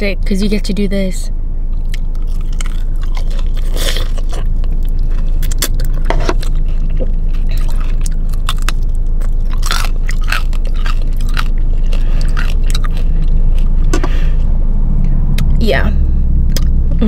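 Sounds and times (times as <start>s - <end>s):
steady low hum: 0.0s - 17.0s
chewing crispy fried chicken: 1.7s - 13.9s.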